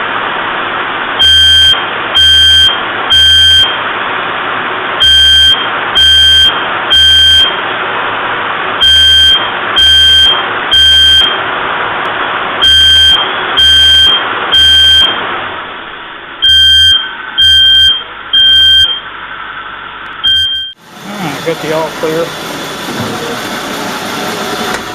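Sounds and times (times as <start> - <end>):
smoke alarm beeping: 1.2 - 3.8, 5.0 - 7.6, 8.8 - 11.4, 12.6 - 15.2, 16.4 - 19.1, 20.2 - 20.8
car engine running: 3.8 - 24.9.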